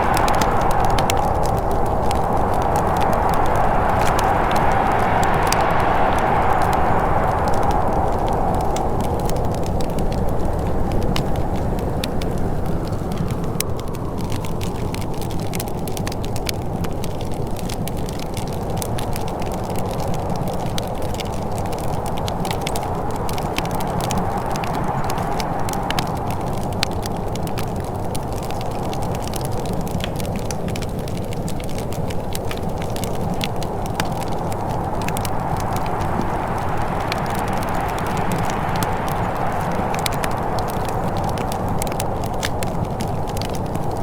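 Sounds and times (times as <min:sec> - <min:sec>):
low rushing noise: 0:00.0 - 0:14.7, 0:19.2 - 0:29.1, 0:32.6 - 0:44.0
wood fire crackling: 0:00.0 - 0:44.0.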